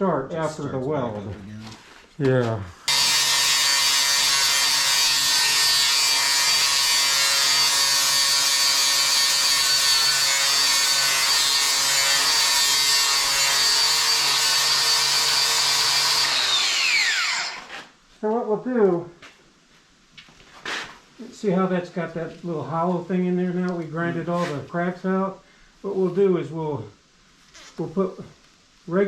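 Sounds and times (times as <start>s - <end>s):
electric grinder grinding steel: 2.9s - 17.9s.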